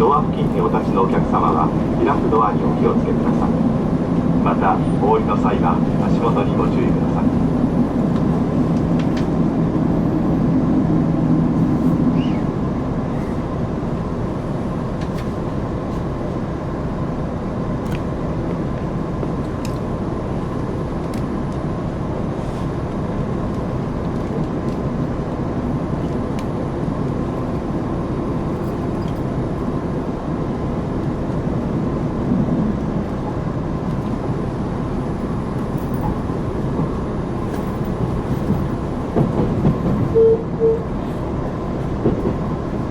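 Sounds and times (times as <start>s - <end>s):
diesel engine hum: 0.0s - 42.9s
train running rumble: 0.0s - 42.9s.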